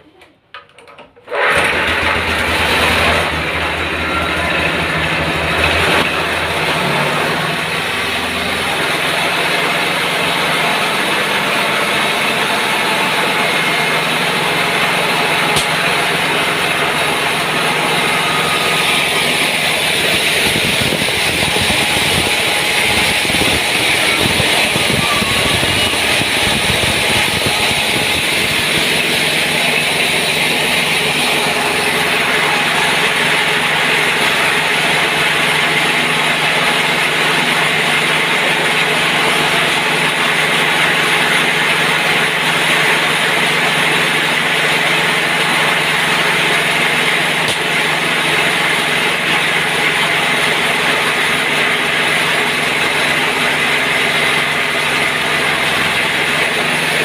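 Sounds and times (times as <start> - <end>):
diesel engine humming: 1.8 - 39.9.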